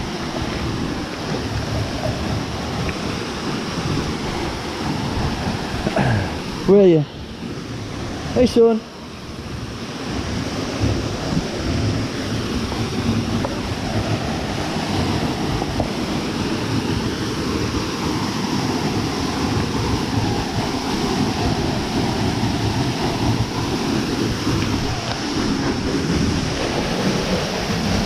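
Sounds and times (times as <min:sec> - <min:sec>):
waterfall rushing over rocks: 0:00.0 - 0:28.0.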